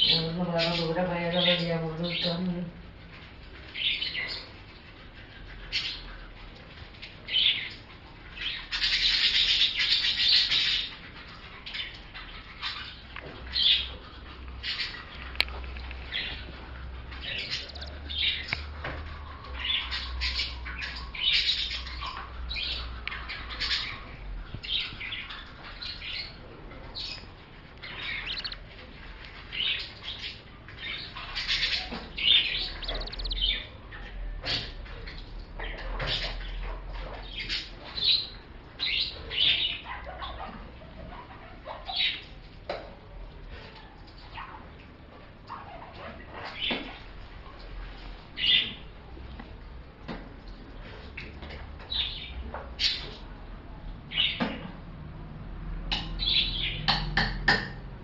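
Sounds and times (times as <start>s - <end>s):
lovebirds chirping: 7.2s - 34.6s.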